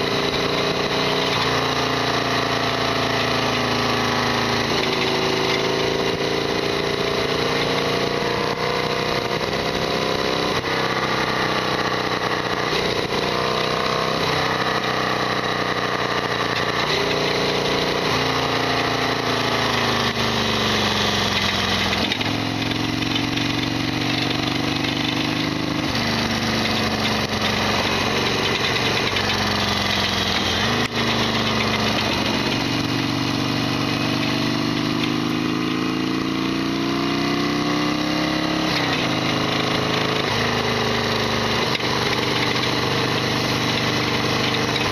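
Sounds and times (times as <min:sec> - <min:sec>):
motorcycle engine revving: 0:00.0 - 0:44.9
loud mechanical rattle: 0:20.8 - 0:33.0.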